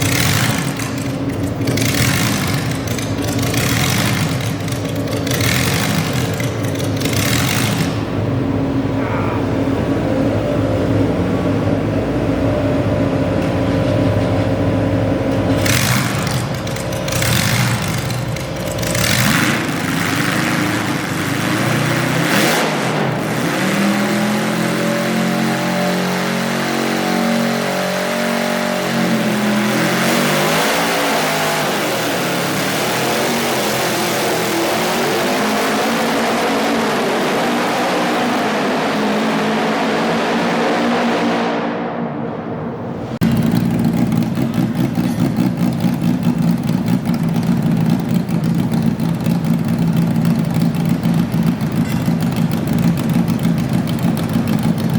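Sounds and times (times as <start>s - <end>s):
tractor engine revving: 0.0s - 42.1s, 42.8s - 54.9s.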